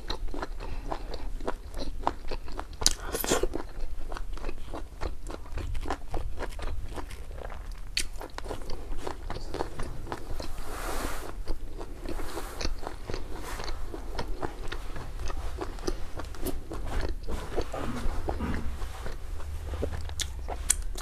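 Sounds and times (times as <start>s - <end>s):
person chewing and crunching food: 0.0s - 21.0s
wet mouth clicks: 20.0s - 21.0s.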